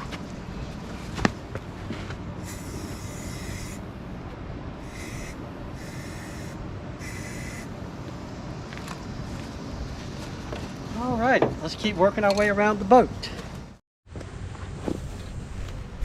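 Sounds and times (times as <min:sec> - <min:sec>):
paint spraying hiss: 0:02.4 - 0:03.9, 0:04.8 - 0:07.7.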